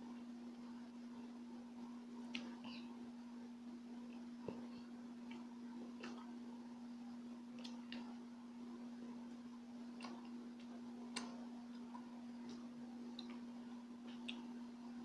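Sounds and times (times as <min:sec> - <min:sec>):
steady electrical hum: 0:00.0 - 0:15.0
mouth chewing sticky food: 0:09.9 - 0:14.6.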